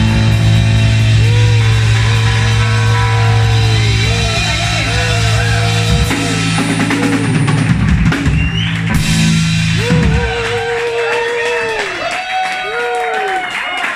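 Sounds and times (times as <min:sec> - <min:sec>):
cymbal crash: 0:00.0 - 0:08.0
bass note: 0:00.0 - 0:11.0
drum fills: 0:00.0 - 0:12.1
electric guitar: 0:00.0 - 0:12.8.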